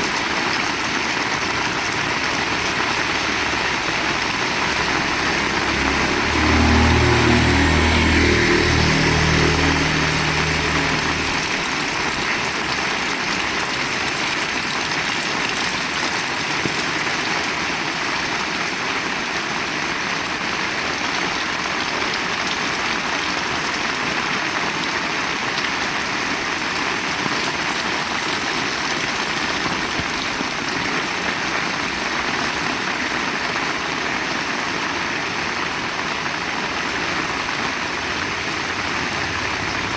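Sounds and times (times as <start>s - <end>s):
heavy rain falling: 0.0s - 39.9s
low rumble: 3.4s - 12.5s.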